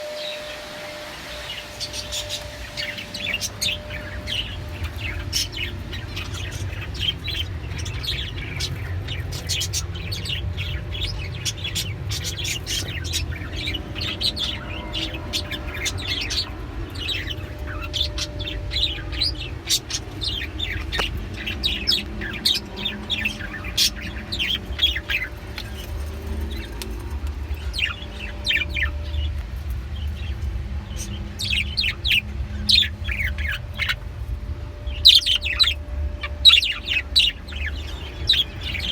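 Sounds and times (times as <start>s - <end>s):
low steady hum: 0.0s - 38.9s
small birds chirping: 0.0s - 38.9s.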